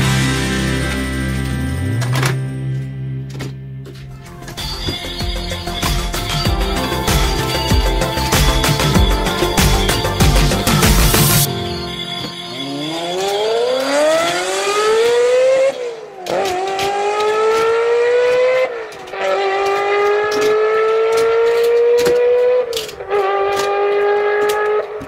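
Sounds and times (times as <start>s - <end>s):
toy cars clinking into plastic box: 12.1s - 25.0s
car engine accelerating: 12.2s - 25.0s.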